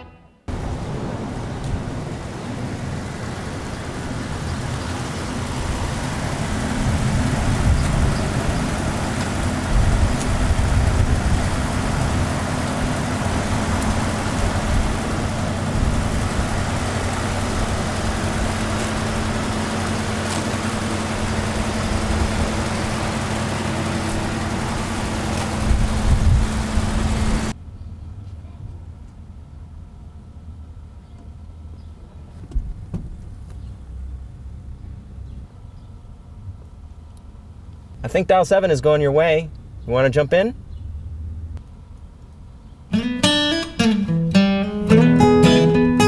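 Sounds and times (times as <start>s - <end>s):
car engine idling: 0.5s - 28.2s.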